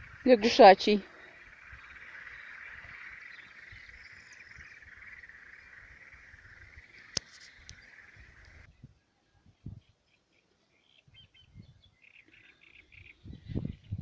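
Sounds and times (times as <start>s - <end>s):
frogs croaking: 0.0s - 8.7s, 12.0s - 13.2s.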